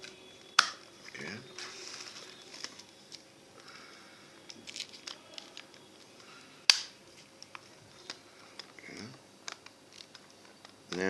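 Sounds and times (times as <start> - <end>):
plastic calculator case clicks: 0.6 - 0.8
sharp plastic snap: 0.6 - 0.9, 6.7 - 7.0.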